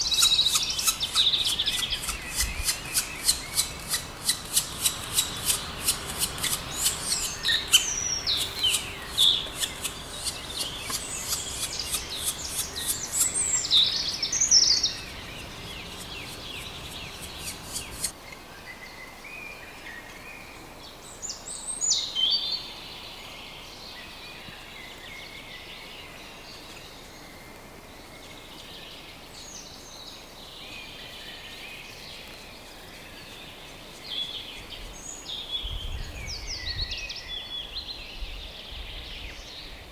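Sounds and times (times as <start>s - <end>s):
songbirds chirping: 0.0s - 39.9s
woodpecker tapping on wood: 0.1s - 13.9s, 14.9s - 18.1s.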